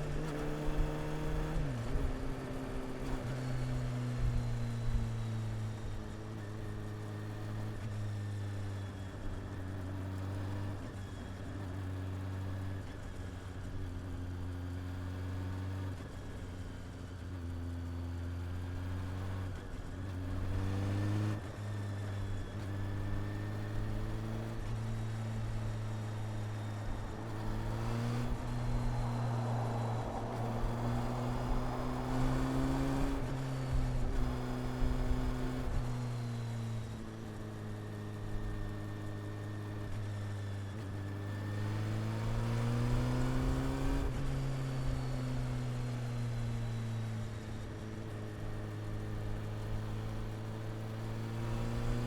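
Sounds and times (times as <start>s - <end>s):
motorcycle engine revving: 18.1s - 52.0s.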